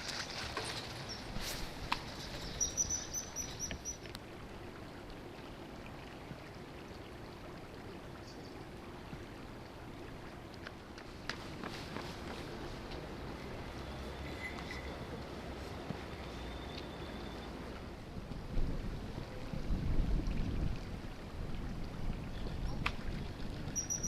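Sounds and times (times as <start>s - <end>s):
kingfisher high sharp calls: 2.4s - 4.0s.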